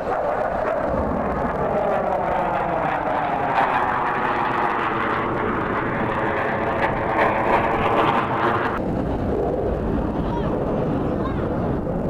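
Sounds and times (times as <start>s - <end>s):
airplane engine: 0.0s - 12.0s.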